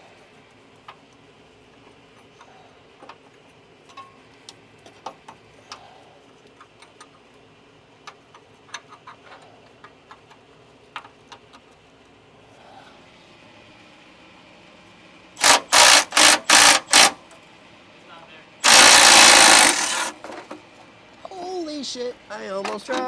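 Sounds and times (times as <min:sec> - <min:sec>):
hand tools clicking and tapping: 0:18.6 - 0:20.6.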